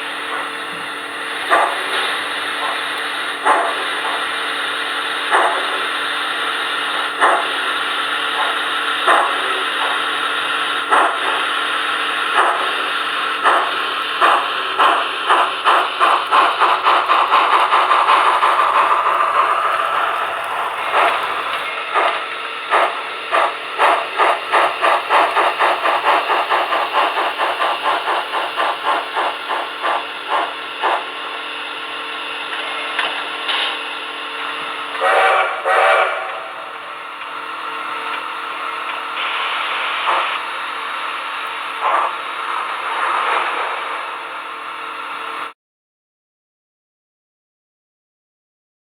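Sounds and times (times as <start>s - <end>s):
steady steam hiss: 0.0s - 45.5s
steam locomotive exhaust chuffs: 0.0s - 45.5s
steam whistle: 35.0s - 36.9s.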